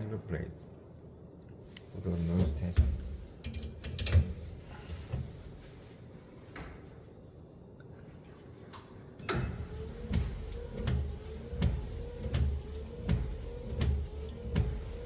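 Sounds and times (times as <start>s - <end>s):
wiper motor hum: 9.4s - 15.0s.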